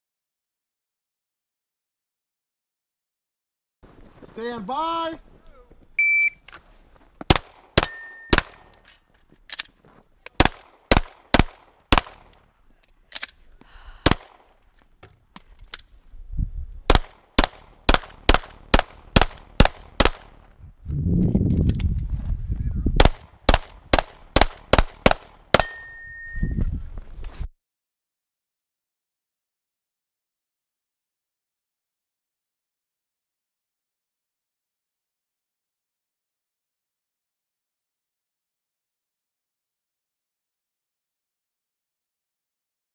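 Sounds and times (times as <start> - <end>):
pistol shots: 7.3 - 8.8, 10.4 - 12.4, 14.0 - 14.6, 16.9 - 20.4, 23.0 - 25.8.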